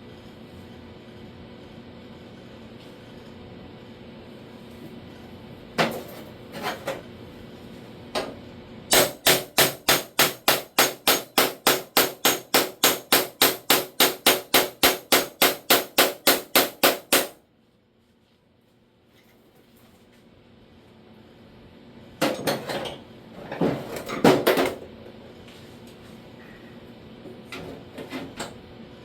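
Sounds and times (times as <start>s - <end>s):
hammer striking sheet metal: 8.9s - 17.4s.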